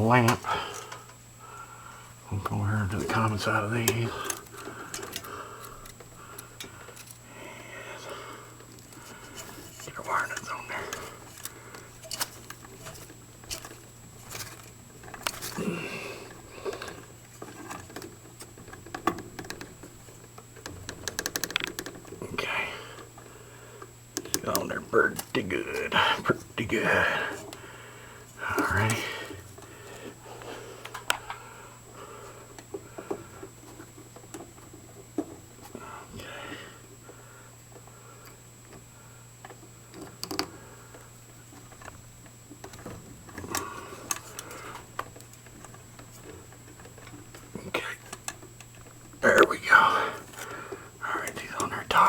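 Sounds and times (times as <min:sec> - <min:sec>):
electrical wires rustling and clicking: 0:00.0 - 0:52.0
steady low hum: 0:00.0 - 0:52.0.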